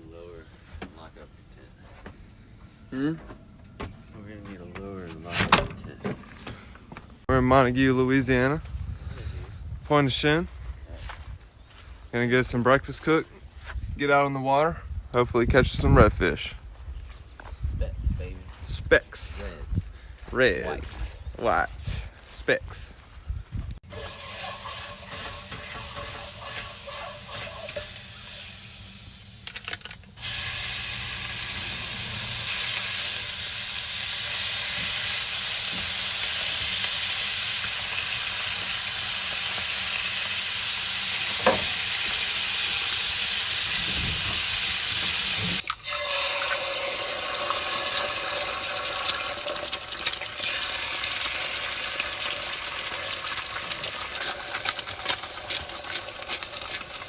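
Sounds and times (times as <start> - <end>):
food sizzling in frying pan: 23.9 - 29.4, 30.2 - 57.0.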